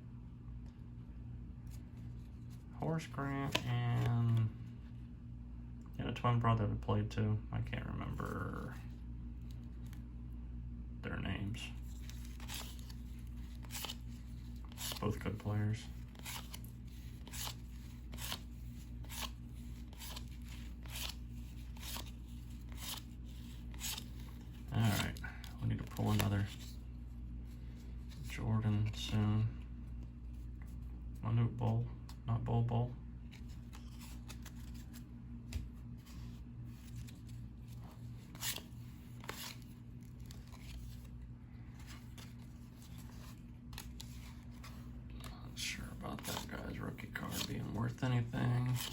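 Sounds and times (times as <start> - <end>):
low steady hum: 0.0 - 48.9
cards flipping with crisp snaps: 3.3 - 4.5, 11.9 - 26.8, 33.2 - 45.3.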